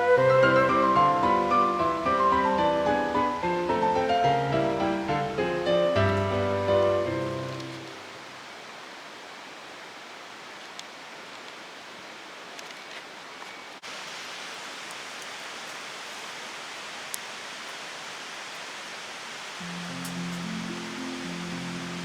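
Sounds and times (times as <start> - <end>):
flowing water rushing: 0.0 - 22.0
faint ticks: 10.6 - 11.6, 19.8 - 20.5.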